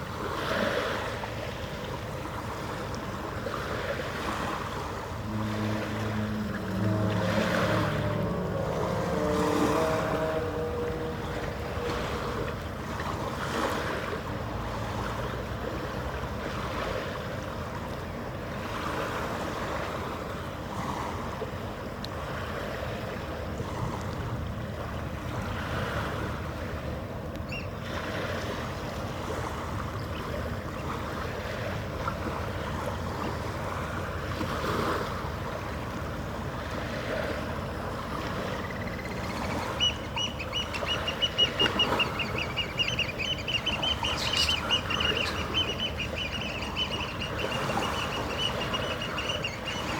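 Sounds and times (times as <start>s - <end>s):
water lapping: 0.0s - 49.9s
wind: 0.0s - 49.9s
low mechanical hum: 4.7s - 15.9s, 28.8s - 49.9s
bird calling rapidly: 38.5s - 49.9s.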